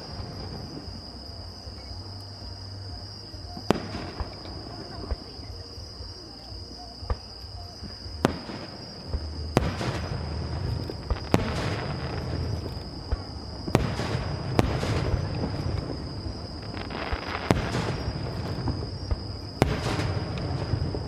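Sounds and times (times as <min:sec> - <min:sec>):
fireworks bangs: 0:00.0 - 0:01.4, 0:03.5 - 0:05.5, 0:08.1 - 0:21.0
fireworks crackling: 0:00.0 - 0:02.8, 0:03.5 - 0:05.5, 0:07.0 - 0:21.0
high insect trill: 0:00.0 - 0:21.0.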